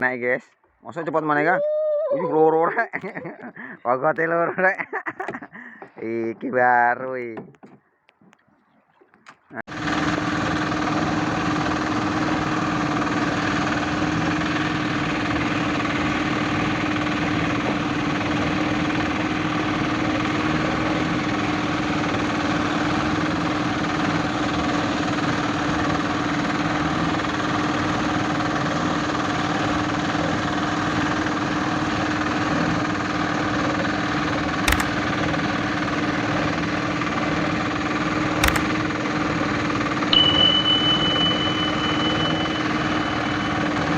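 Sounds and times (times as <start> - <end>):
sharp click: 34.7 - 35.0, 38.4 - 38.8, 40.2 - 43.9.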